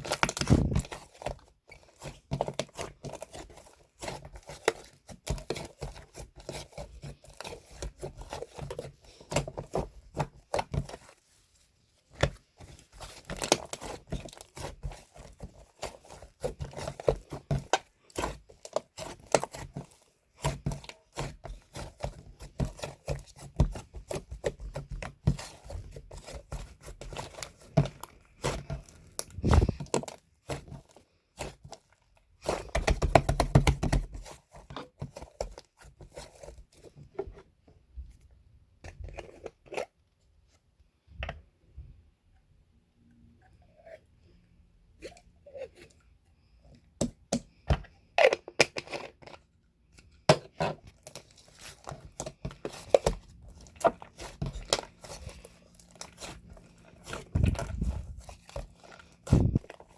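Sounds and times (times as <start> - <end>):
crinkling and tearing: 0.0 - 9.4, 24.4 - 32.8, 50.8 - 59.9.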